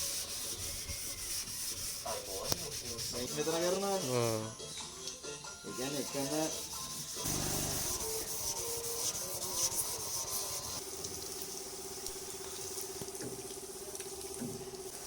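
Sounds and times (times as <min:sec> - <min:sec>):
hand sanding: 0:00.0 - 0:04.1, 0:05.8 - 0:10.8.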